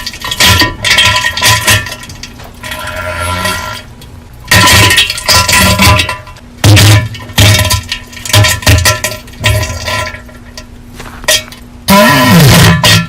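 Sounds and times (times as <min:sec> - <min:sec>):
wet diarrhoea bursts: 0:11.9 - 0:12.8.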